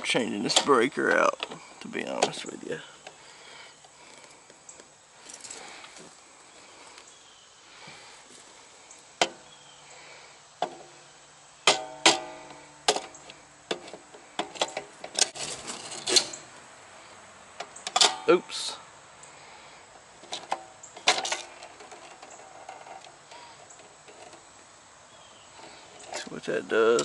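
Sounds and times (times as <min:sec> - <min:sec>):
metallic clicks and clanks: 0:00.4 - 0:02.5, 0:11.6 - 0:16.5, 0:17.6 - 0:18.3, 0:20.2 - 0:24.4.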